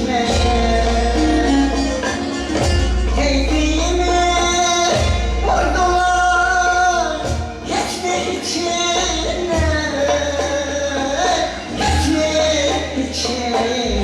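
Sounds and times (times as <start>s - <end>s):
steady low bass: 0.0s - 7.8s
instrumental accompaniment: 0.0s - 14.0s
person singing folk song: 0.0s - 14.0s.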